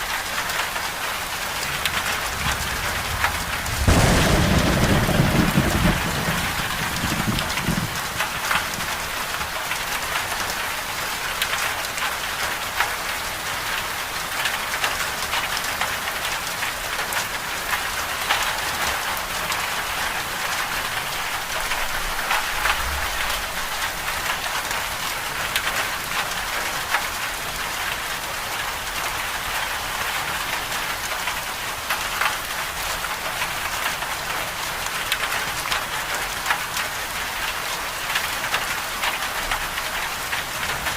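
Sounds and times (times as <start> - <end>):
steady rain falling: 0.0 - 40.9
low thunder rumble: 1.7 - 9.1.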